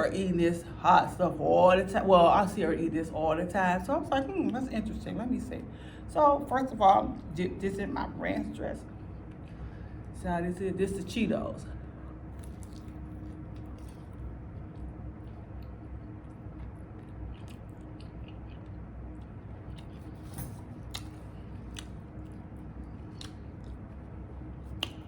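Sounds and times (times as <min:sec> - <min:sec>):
low steady hum: 0:00.0 - 0:25.0
person chewing crunchy food: 0:12.0 - 0:25.0.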